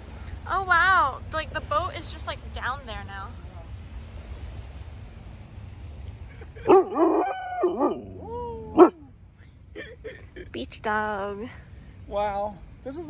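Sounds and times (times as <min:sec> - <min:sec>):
dog barking and yelping: 0:06.6 - 0:09.0.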